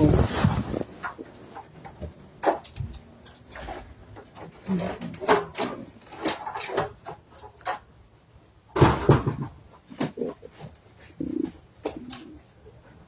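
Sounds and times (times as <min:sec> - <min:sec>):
irregular knocks and clatters: 0:00.0 - 0:07.9, 0:08.8 - 0:10.8.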